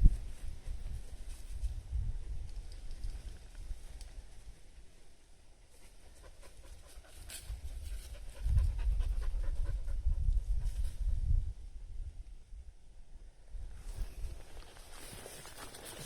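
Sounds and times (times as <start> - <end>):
dog panting: 6.0 - 10.2.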